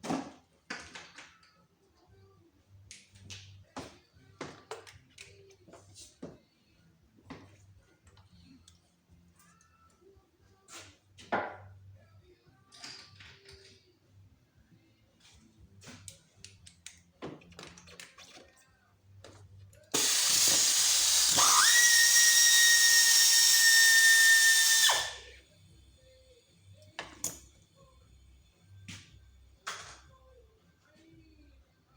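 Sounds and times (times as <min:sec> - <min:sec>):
whistling tone: 0:21.4 - 0:25.3.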